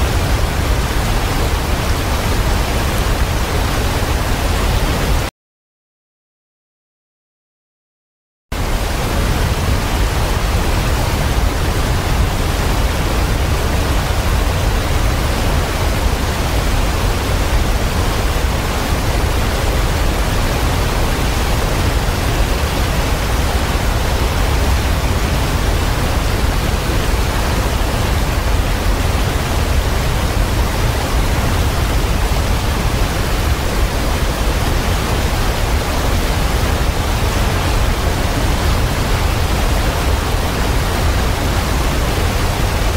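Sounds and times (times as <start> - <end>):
waterfall rushing: 0.0 - 5.3, 8.6 - 42.9.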